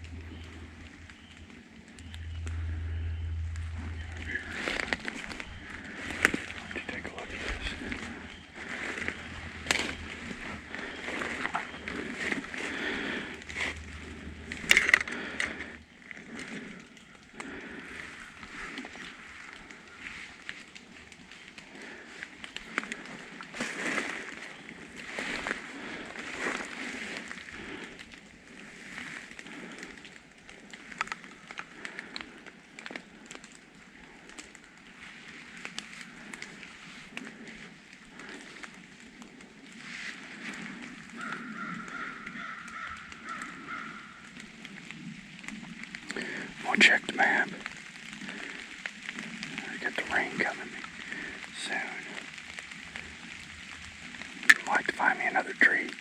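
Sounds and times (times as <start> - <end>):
footsteps crunching through dry leaves: 0.0 - 15.8, 17.8 - 28.0
twigs snapping: 0.0 - 56.0.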